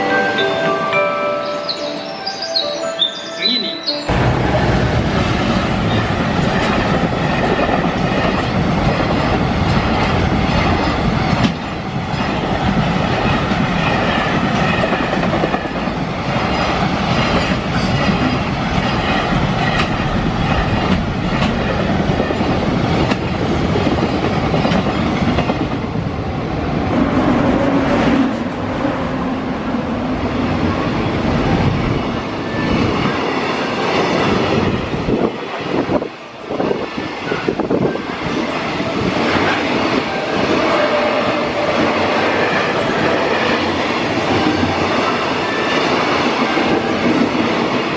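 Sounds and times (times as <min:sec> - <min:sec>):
freight train passing: 0:00.0 - 0:47.9
wheels clacking over rail joints: 0:05.1 - 0:25.8.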